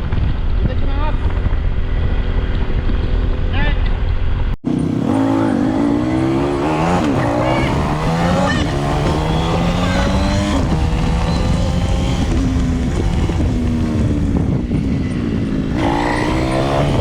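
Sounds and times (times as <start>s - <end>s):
motorcycle engine accelerating: 0.0s - 17.0s
wind rushing: 4.3s - 17.0s.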